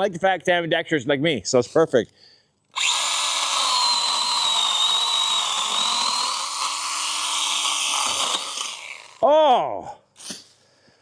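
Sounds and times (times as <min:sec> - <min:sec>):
mini chainsaw whining: 0:02.7 - 0:09.2.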